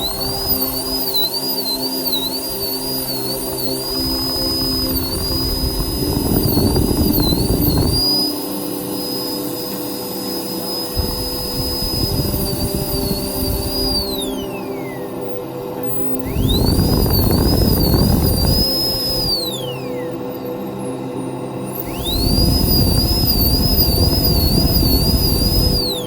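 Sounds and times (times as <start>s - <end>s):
dental drill whining: 0.0s - 26.0s
grinding noise: 3.8s - 14.5s, 16.2s - 19.4s.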